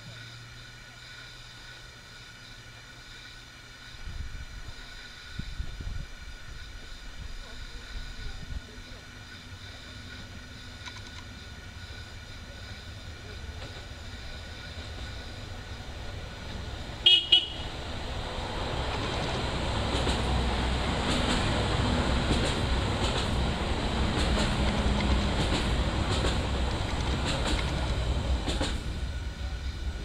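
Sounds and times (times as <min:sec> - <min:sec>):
train passing rumble: 0:00.0 - 0:30.0
wheels clicking on rails: 0:07.4 - 0:30.0
train horn toots: 0:17.0 - 0:17.8.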